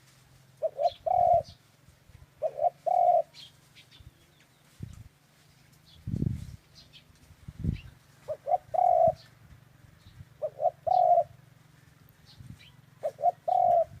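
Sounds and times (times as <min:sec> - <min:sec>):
dove cooing: 0:00.5 - 0:01.6, 0:02.4 - 0:03.5, 0:08.2 - 0:09.4, 0:10.3 - 0:11.4, 0:12.6 - 0:14.0
small birds chirping: 0:00.5 - 0:14.0.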